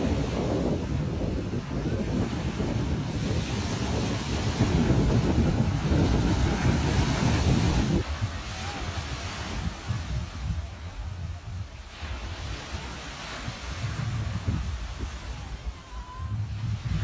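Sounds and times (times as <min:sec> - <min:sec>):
ocean waves on beach: 0:00.0 - 0:17.0
wind rumbling on microphone: 0:00.0 - 0:17.0.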